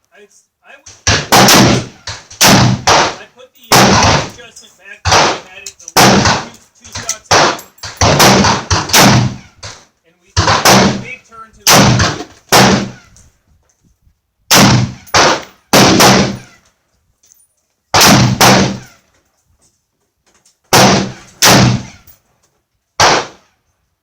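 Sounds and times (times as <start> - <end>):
rifle shots with echo: 1.0 - 4.4, 5.0 - 9.8, 10.4 - 13.1, 14.5 - 16.5, 17.9 - 19.0, 20.7 - 22.1, 23.0 - 23.5.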